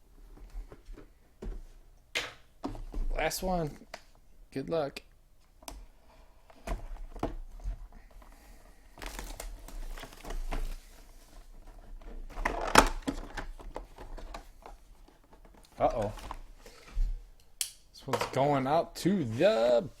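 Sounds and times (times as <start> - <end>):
plastic wrapping crinkling: 8.6 - 11.7.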